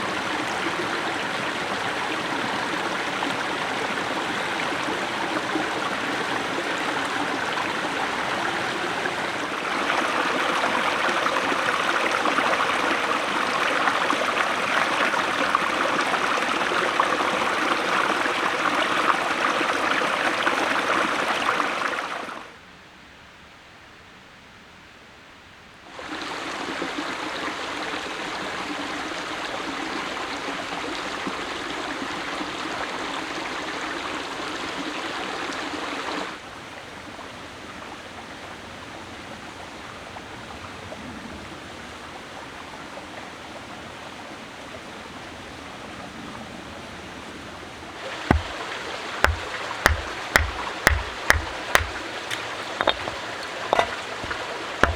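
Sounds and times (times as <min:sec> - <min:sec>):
stream flowing: 0:00.0 - 0:22.5, 0:25.9 - 0:36.4, 0:47.9 - 0:54.9.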